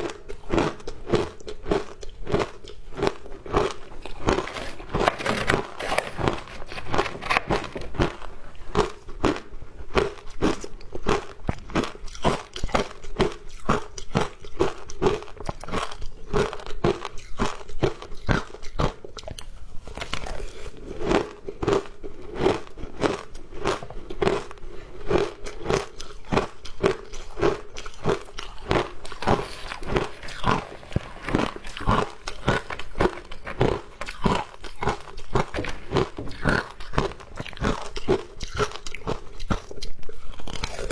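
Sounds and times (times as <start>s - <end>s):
person crunching ice: 0.6s - 10.6s, 25.2s - 39.8s, 40.5s - 40.9s.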